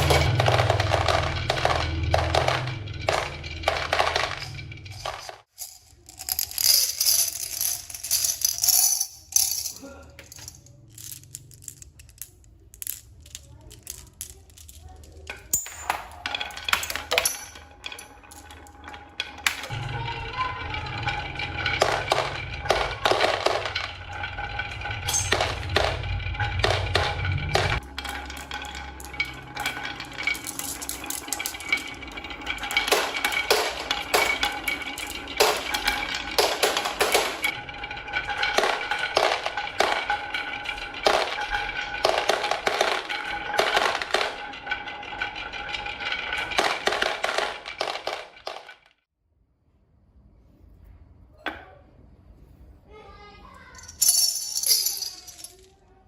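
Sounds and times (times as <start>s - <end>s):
toy parts clicking: 0.0s - 15.7s
low rumble: 19.7s - 36.3s.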